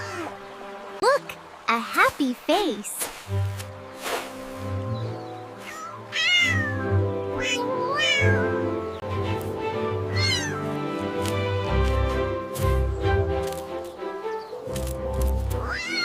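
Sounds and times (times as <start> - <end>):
background music with held tones: 3.3 - 16.0
cat meowing: 5.6 - 8.6, 10.1 - 10.8, 15.6 - 16.0.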